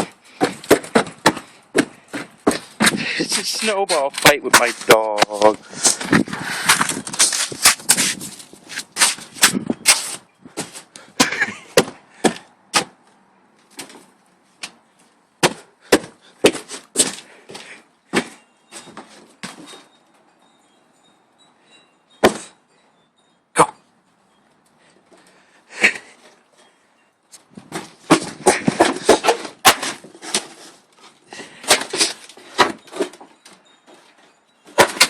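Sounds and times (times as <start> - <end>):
crunches and thumps: 0.0 - 13.0, 27.4 - 34.1.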